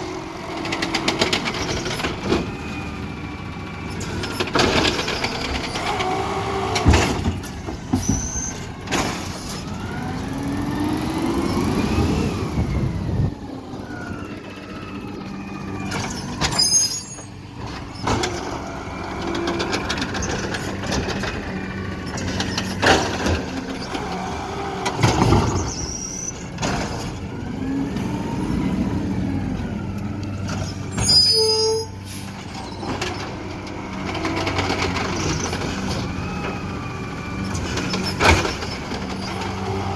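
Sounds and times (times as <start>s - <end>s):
diesel engine revving: 0.0s - 39.9s
short high squeals: 8.0s - 8.7s, 16.0s - 17.4s, 25.5s - 26.4s, 30.6s - 32.9s.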